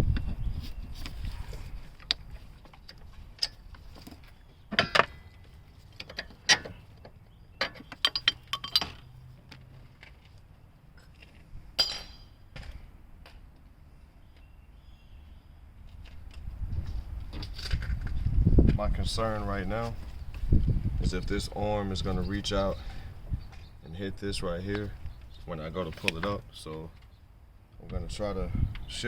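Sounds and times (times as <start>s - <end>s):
hand tools clinking: 7.6s - 9.1s, 11.8s - 12.3s.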